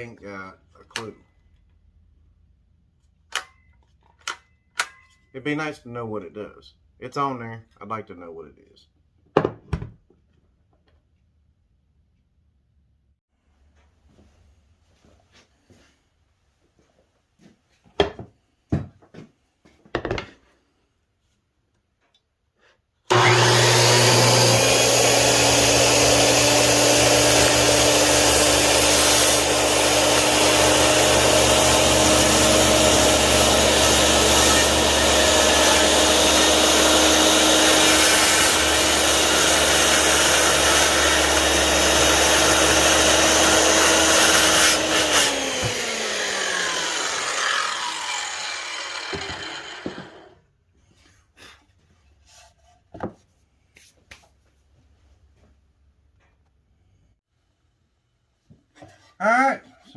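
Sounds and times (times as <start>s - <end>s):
circular saw cutting wood: 23.1s - 50.4s.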